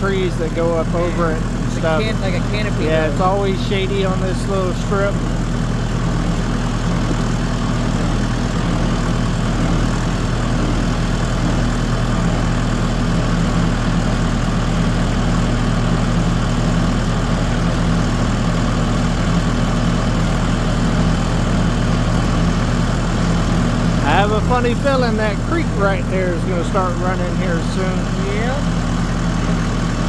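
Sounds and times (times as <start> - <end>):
tractor engine droning: 0.0 - 30.0.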